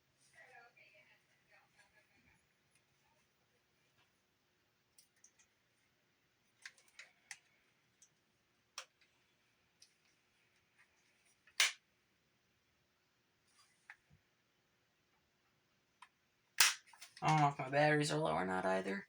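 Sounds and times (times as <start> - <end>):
faint clicks of plastic parts: 4.9 - 11.9, 13.4 - 14.3, 15.9 - 17.5.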